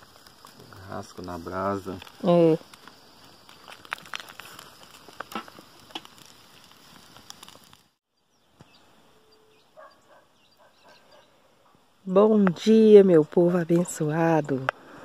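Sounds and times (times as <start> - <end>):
charcoal fire crackling and popping: 0.0 - 8.7, 12.0 - 15.0
distant bird chirps: 8.1 - 11.7.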